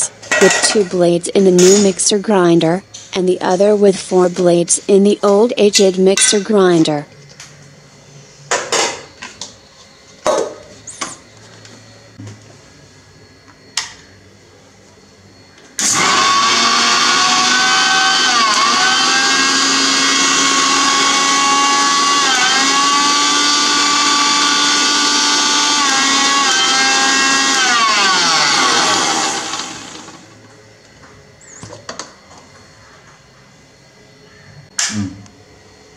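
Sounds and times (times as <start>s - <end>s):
mixer grinder motor grinding leaves: 15.8s - 30.6s.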